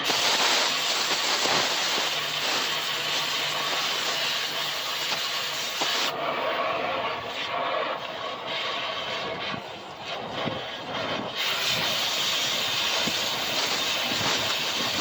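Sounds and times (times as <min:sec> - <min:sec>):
pressurized gas hissing: 0:00.0 - 0:06.1, 0:11.1 - 0:15.0.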